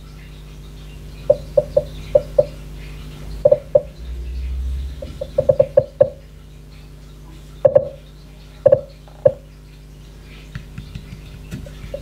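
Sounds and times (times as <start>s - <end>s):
smart speaker blip tones: 1.3s - 2.6s, 3.4s - 6.2s.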